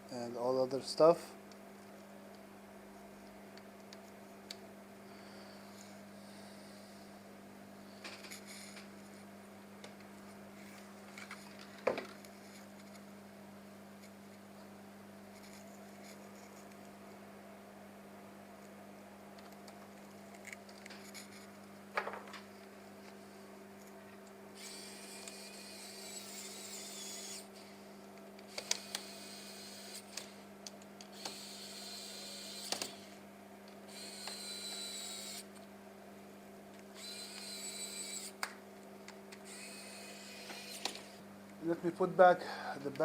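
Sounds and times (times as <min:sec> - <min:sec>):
faint electrical hum: 0:00.0 - 0:43.0
electric screwdriver whirring: 0:24.6 - 0:27.7, 0:28.5 - 0:30.4, 0:31.1 - 0:33.2, 0:33.9 - 0:35.5, 0:36.9 - 0:38.5, 0:39.5 - 0:41.2.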